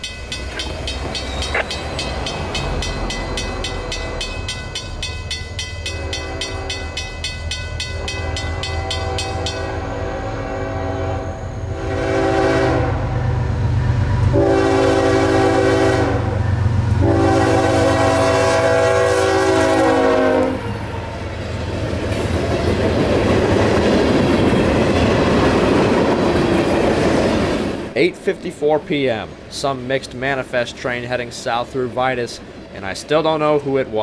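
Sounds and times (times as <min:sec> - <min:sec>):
freight cars rolling over rails: 0:00.0 - 0:09.6
locomotive air horn blasts: 0:05.8 - 0:07.0, 0:08.0 - 0:13.4, 0:14.3 - 0:20.8.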